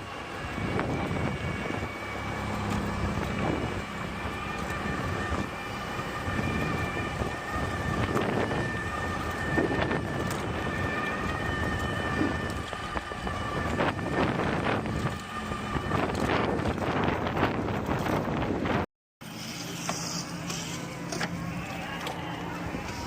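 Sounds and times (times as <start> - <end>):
wind rush on microphone: 0.0 - 18.9
electric motor whine: 0.0 - 23.0
rolling road noise: 0.0 - 23.0.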